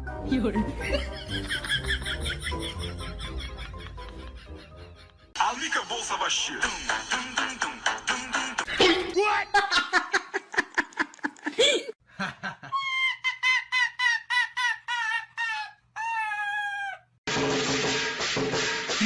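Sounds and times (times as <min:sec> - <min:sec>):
music: 0:00.0 - 0:08.7, 0:17.3 - 0:19.0
person speaking: 0:05.4 - 0:10.0.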